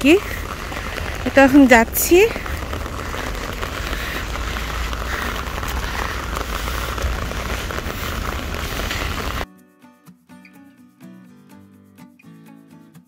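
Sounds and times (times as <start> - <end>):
heavy rain on tarmac: 0.0 - 9.4
low rumble: 0.0 - 9.4.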